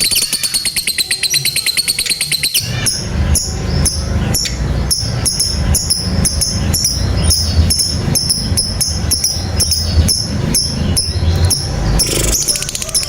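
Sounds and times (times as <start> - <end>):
lovebird chirping shrilly: 0.0 - 13.0
steady low hum: 2.6 - 13.0.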